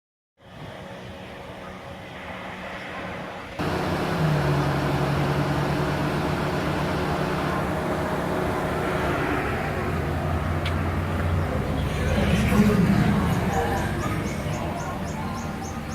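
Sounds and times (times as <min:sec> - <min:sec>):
rushing noise: 0:00.5 - 0:15.9
machine hum: 0:03.6 - 0:15.9.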